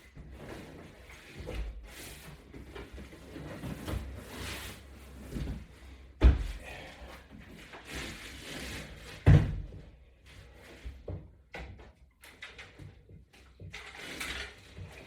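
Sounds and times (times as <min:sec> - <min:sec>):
heavy thuds: 0:06.2 - 0:06.8.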